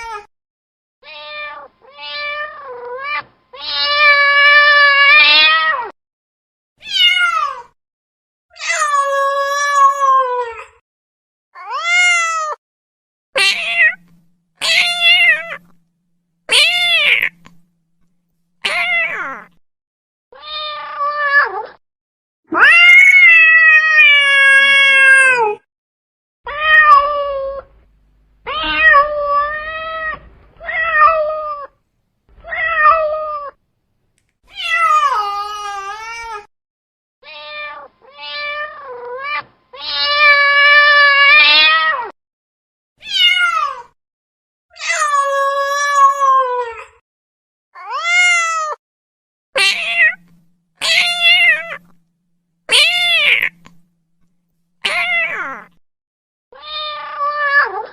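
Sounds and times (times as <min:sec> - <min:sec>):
cat meowing: 0:01.0 - 0:05.9, 0:06.8 - 0:07.7, 0:13.4 - 0:15.8, 0:16.5 - 0:17.7, 0:18.6 - 0:19.6, 0:20.4 - 0:21.8, 0:22.5 - 0:25.6, 0:26.5 - 0:27.8, 0:28.4 - 0:31.8, 0:32.4 - 0:33.6, 0:34.5 - 0:36.5, 0:37.2 - 0:42.1, 0:43.0 - 0:43.9, 0:49.6 - 0:52.0, 0:52.7 - 0:53.9, 0:54.8 - 0:55.8, 0:56.6 - 0:57.9.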